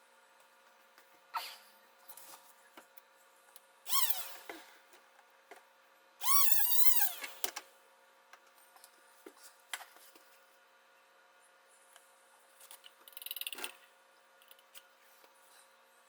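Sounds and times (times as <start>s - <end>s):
high-pitched wavering squeak: 6.2s - 7.2s.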